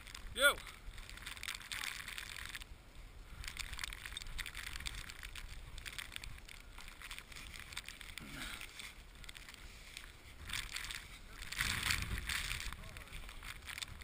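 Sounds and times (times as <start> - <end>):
wind rumble on microphone: 10.3 - 14.0.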